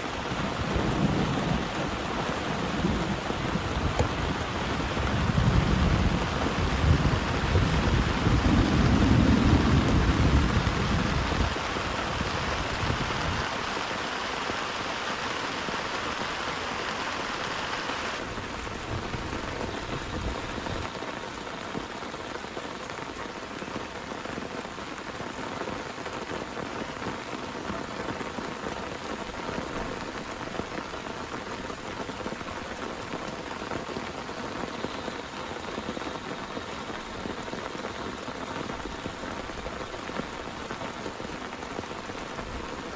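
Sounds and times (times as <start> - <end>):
heavy rain falling: 0.0 - 42.9
thunder rumble: 0.2 - 13.8.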